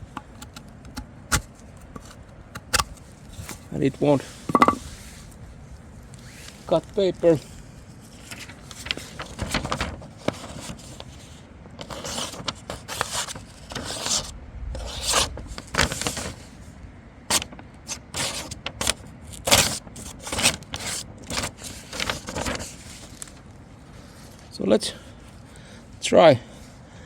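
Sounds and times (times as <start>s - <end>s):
knife scraping paper: 0.2s - 3.6s, 8.1s - 16.4s, 17.3s - 23.4s.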